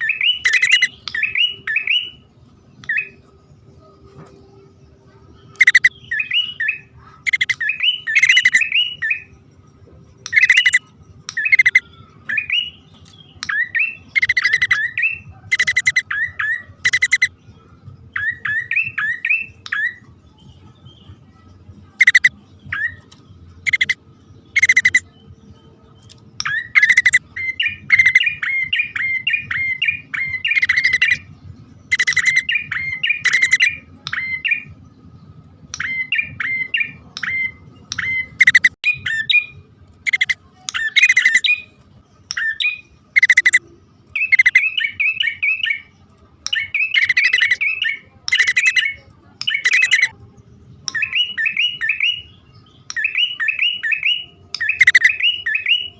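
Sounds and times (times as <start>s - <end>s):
harsh bird chattering: 0.0s - 2.0s, 5.5s - 9.1s, 10.2s - 11.8s, 13.4s - 17.3s, 22.0s - 22.4s, 23.0s - 25.1s, 26.4s - 31.2s, 31.9s - 34.5s, 35.8s - 39.4s, 40.0s - 41.6s, 42.4s - 43.6s, 44.2s - 45.7s, 46.5s - 50.1s, 53.0s - 55.8s
bird chirping trills: 0.0s - 55.9s.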